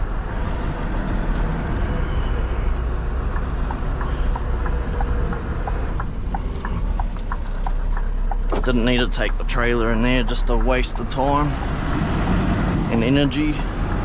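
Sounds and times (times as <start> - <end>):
road and rain noise: 0.0 - 14.0
truck engine running: 0.0 - 14.0
two-pitch ticking: 1.8 - 12.0.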